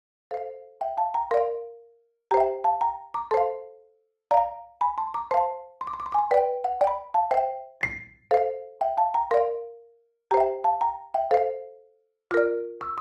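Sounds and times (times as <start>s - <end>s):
light melody of struck notes: 12.3s - 13.0s.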